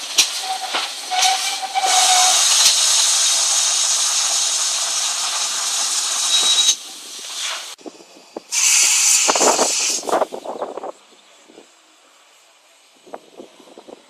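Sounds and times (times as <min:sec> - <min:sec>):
steam hissing: 0:00.0 - 0:10.7
steam whistle: 0:00.4 - 0:03.6, 0:06.3 - 0:06.8.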